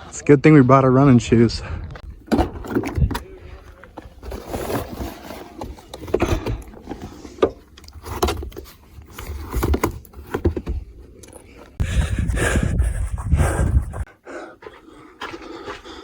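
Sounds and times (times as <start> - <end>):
rustling: 2.0 - 11.8
footsteps on a trail: 11.8 - 16.0.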